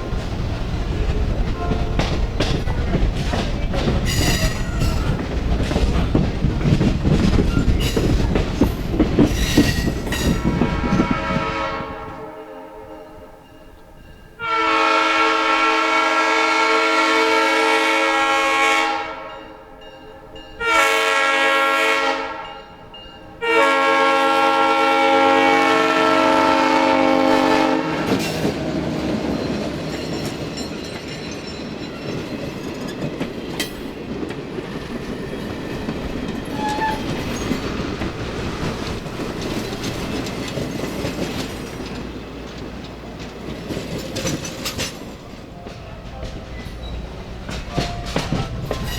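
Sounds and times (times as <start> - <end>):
wheels clicking over rail joints: 0.0 - 11.1, 28.1 - 48.9
train rumbling along track: 0.0 - 48.9
locomotive air horn blasts: 1.5 - 2.1, 10.4 - 13.4, 14.4 - 19.6, 20.6 - 22.6, 23.4 - 28.3.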